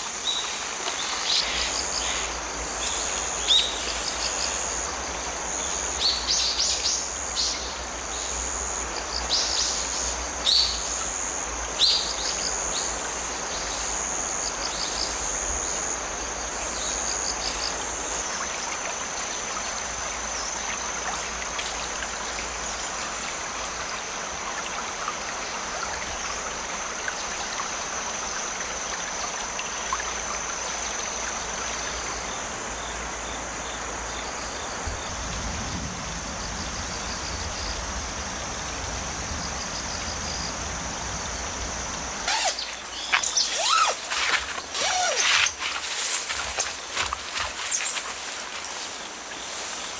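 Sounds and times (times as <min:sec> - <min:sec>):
creek flowing: 0:00.0 - 0:06.0, 0:36.3 - 0:49.9
crickets trilling: 0:00.0 - 0:49.9
birds chirping: 0:42.3 - 0:45.7.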